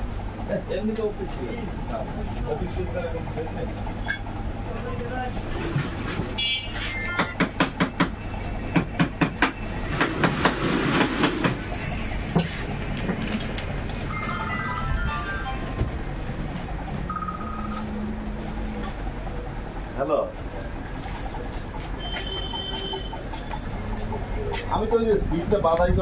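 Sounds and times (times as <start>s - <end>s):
stepped electronic melody: 14.0s - 18.1s.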